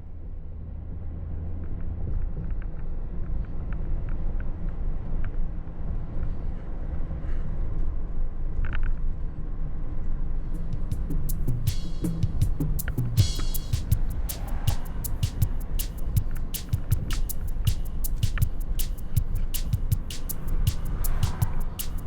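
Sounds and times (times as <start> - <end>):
sharp percussive clicks: 10.6 - 22.0
city road traffic rumble: 19.2 - 22.0.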